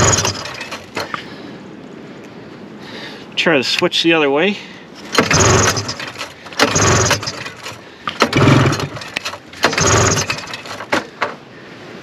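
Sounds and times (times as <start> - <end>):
recoil starter cranking engine: 0.0 - 1.2, 5.1 - 11.3
starter clicks: 0.0 - 1.3, 5.1 - 11.4.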